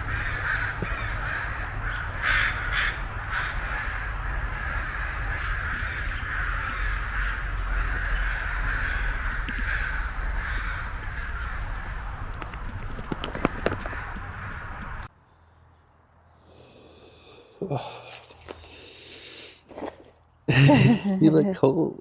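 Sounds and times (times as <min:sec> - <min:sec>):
crows cawing: 0:00.0 - 0:15.1.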